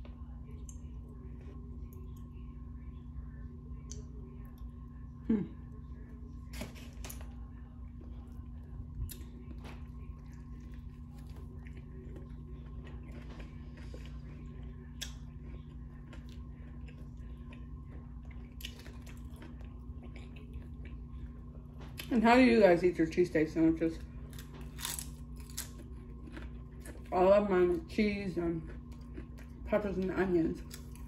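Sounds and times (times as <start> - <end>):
low hum: 0.0 - 31.0
person chewing food: 6.5 - 22.1, 24.1 - 27.2, 28.6 - 29.6, 30.6 - 31.0.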